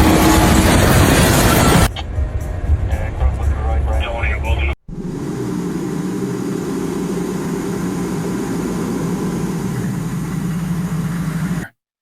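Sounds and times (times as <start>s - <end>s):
heavy engine droning: 0.0s - 1.9s, 4.8s - 11.7s.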